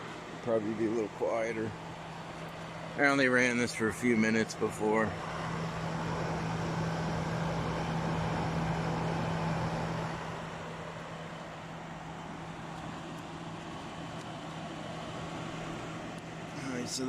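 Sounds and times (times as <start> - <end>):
air conditioner compressor hum: 0.0 - 17.0
air conditioner fan rushing: 0.0 - 17.0.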